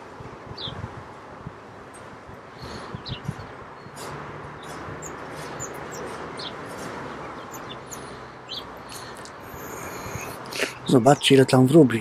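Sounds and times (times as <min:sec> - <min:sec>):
small birds chirping: 0:00.6 - 0:00.9, 0:02.0 - 0:12.0.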